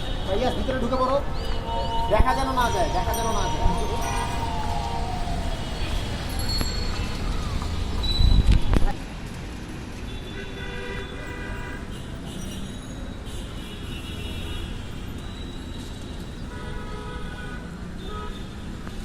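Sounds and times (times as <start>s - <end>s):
city traffic: 0.0s - 19.0s
vehicle horns blasting: 10.1s - 12.5s, 16.5s - 18.6s.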